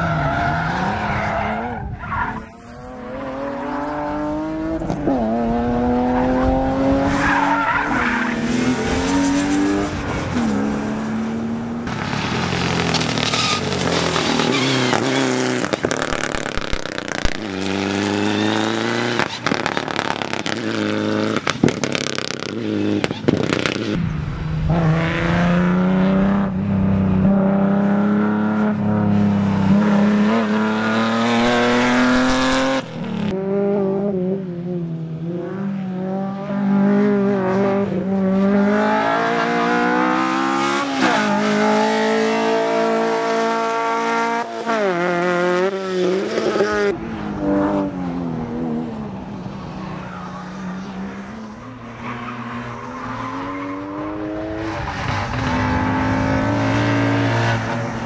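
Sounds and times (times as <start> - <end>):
rally car engine revving: 0.0 - 58.0
tyres squealing: 13.0 - 15.4.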